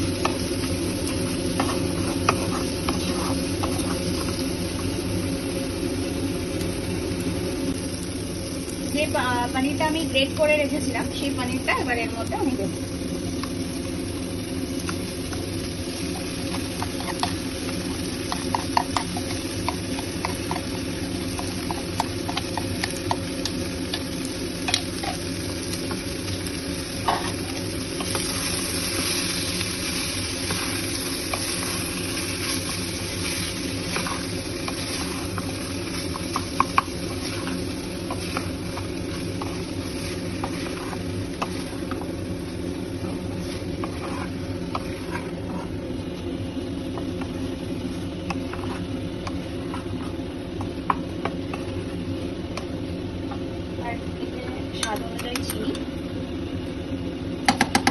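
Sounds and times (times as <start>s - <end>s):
frying sizzle: 0.0s - 57.9s
steady low hum: 0.0s - 57.9s
spatula scraping a pan: 0.2s - 4.9s, 16.0s - 23.2s, 27.0s - 42.1s, 42.9s - 45.8s, 47.2s - 50.2s.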